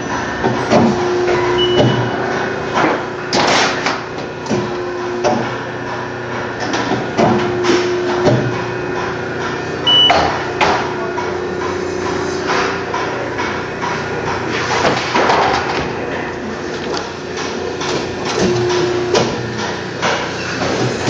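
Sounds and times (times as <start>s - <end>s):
machine hum: 0.0s - 21.0s
short high beep: 1.6s - 2.1s, 9.9s - 10.2s.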